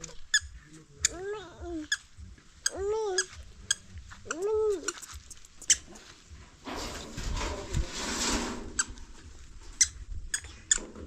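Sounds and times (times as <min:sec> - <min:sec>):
high-pitched squeaky chirps: 0:00.0 - 0:06.1, 0:09.8 - 0:10.9
rough scraping noise: 0:04.9 - 0:09.8.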